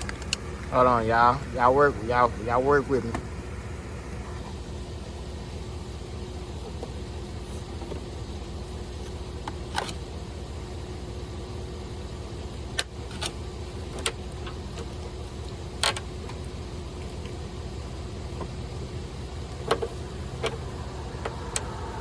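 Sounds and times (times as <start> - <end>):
vehicle engine idling: 0.0 - 22.0
sharp clicks and knocks: 9.0 - 10.0, 12.7 - 16.5, 19.5 - 20.6.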